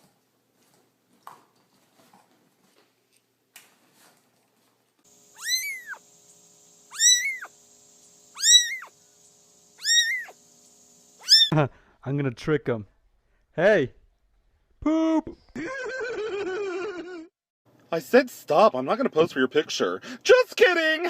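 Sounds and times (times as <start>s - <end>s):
cat meowing loudly: 5.3s - 6.0s, 6.9s - 7.5s, 8.4s - 8.9s, 9.8s - 10.4s, 11.2s - 11.6s.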